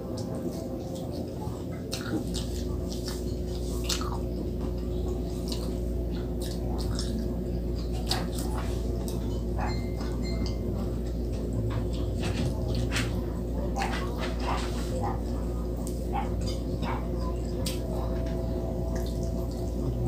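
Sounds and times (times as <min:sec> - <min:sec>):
steady low hum: 0:00.0 - 0:20.0
person chewing: 0:00.1 - 0:12.9
fingers picking at meat: 0:00.1 - 0:19.9.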